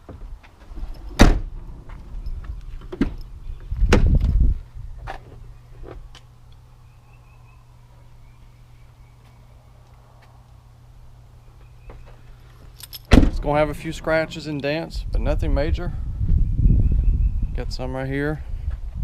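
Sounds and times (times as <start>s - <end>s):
truck door thunks: 1.1s - 1.6s, 13.1s - 14.1s
steady low hum: 12.2s - 17.6s
heavy clatter: 13.0s - 15.6s.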